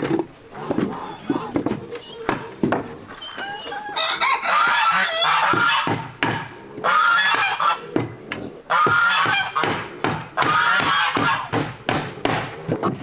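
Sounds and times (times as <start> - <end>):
geese honking: 3.2 - 8.0, 8.7 - 9.8, 10.4 - 11.5.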